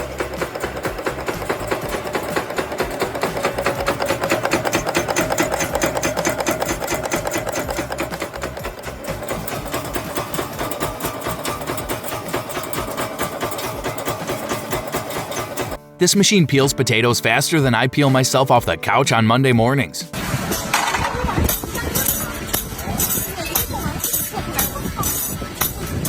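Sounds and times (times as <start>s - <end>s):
factory machine clatter: 0.0s - 15.8s
machine hum: 0.0s - 15.9s.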